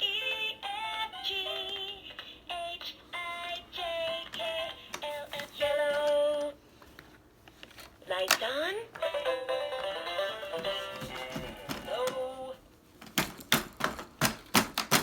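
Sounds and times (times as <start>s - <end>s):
electronic children's tune: 9.0s - 11.7s.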